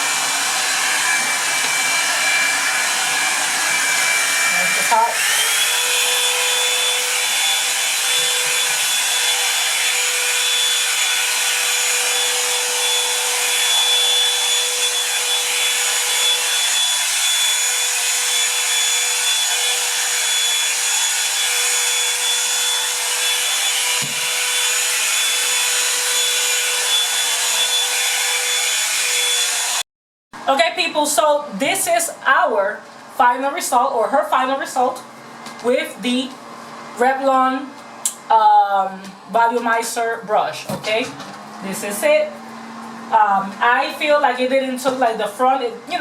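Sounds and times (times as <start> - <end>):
hair dryer blowing: 0.0 - 46.0.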